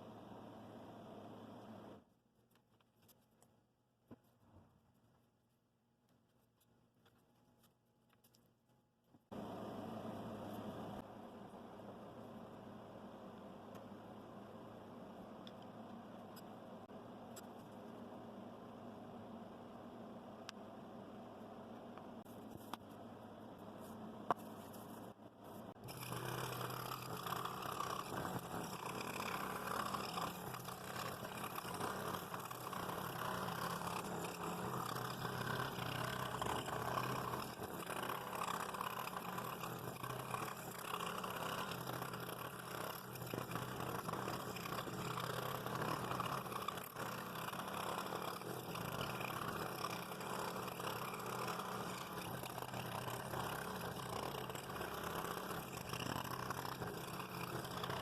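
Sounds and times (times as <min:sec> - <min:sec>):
small machine humming: 0:25.7 - 0:58.0.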